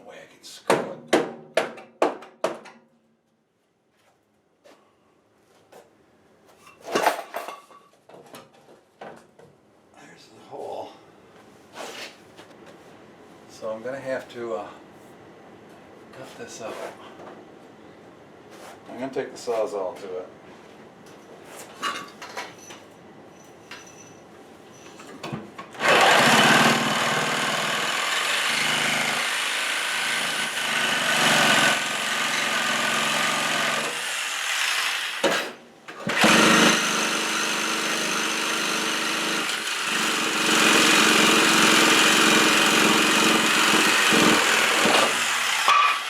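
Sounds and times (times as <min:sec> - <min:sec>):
reciprocating saw cutting sheet metal: 0:25.8 - 0:46.0.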